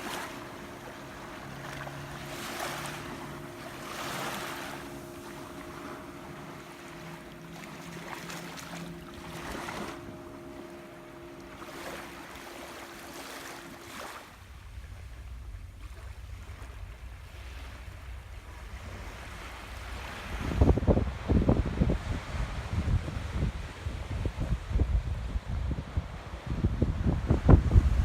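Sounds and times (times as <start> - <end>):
surf washing onto beach: 0.0 - 14.8
faint steady hum: 0.0 - 28.0
wind buffeting microphone: 0.0 - 28.0.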